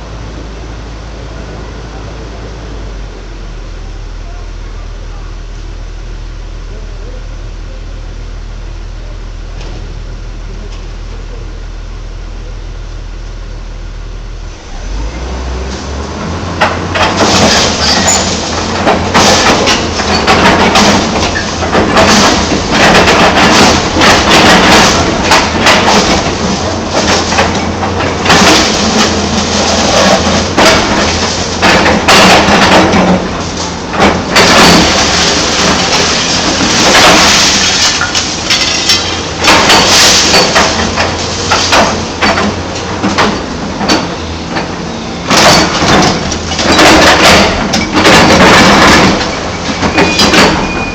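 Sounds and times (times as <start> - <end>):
excavator diesel engine running: 0.0 - 50.9
loads clattering into truck body: 15.7 - 50.9.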